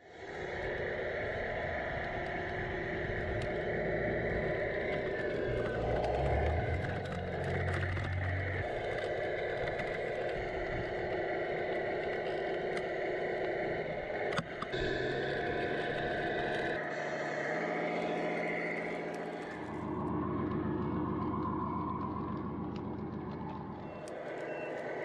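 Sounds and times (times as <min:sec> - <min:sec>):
toy truck motor running: 0:01.0 - 0:20.0.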